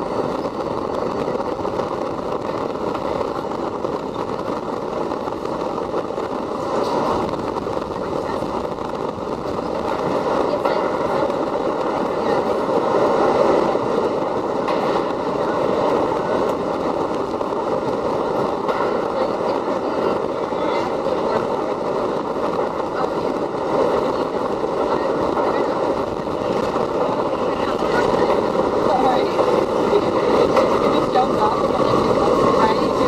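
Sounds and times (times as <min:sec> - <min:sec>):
faint steady whine: 0:00.0 - 0:33.0
subway train wheels rumbling on rail: 0:00.0 - 0:33.0.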